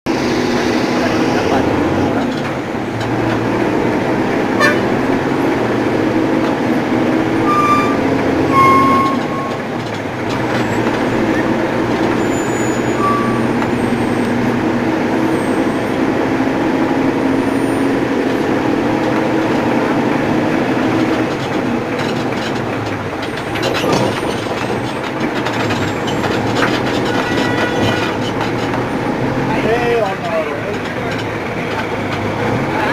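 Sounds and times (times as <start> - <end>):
truck engine hum: 0.1 - 32.9
short high horn toots: 4.6 - 5.0, 7.4 - 9.7, 12.4 - 13.5.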